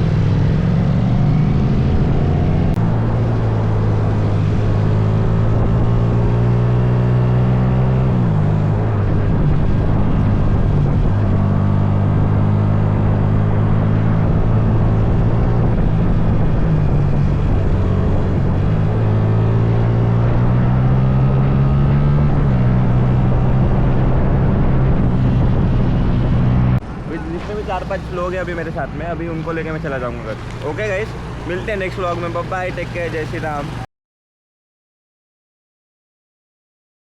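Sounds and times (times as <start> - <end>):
motorcycle engine running: 29.6 - 33.8.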